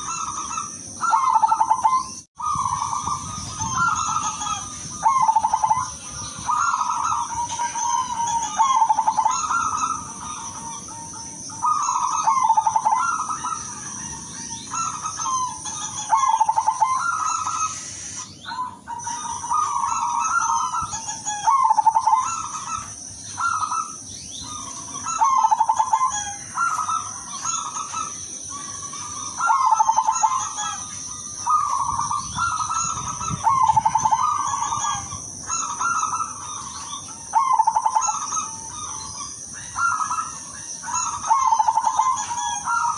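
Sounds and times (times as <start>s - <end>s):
dove cooing: 0.0s - 42.9s
high-pitched hiss: 17.2s - 18.5s.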